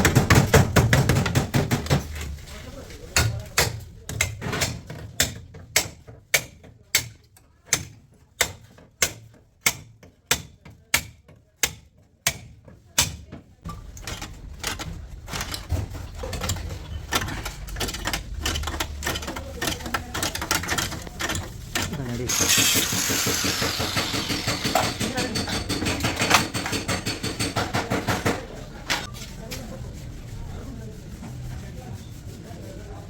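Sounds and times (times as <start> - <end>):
hammer striking sheet metal: 22.3 - 28.4.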